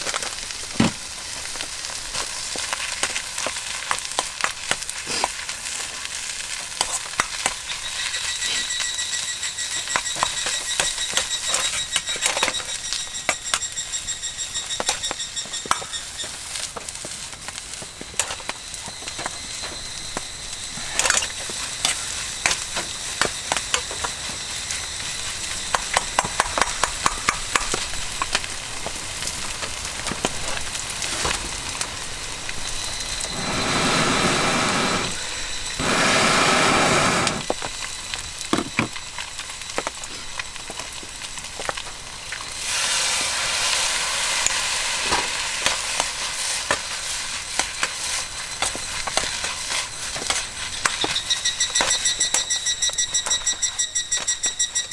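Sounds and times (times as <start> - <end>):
rice sizzling in a wok: 0.0 - 54.9.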